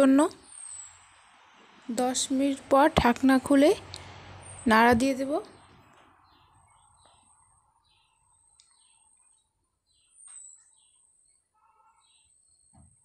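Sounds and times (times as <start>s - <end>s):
faint bird chirps: 5.5s - 13.0s.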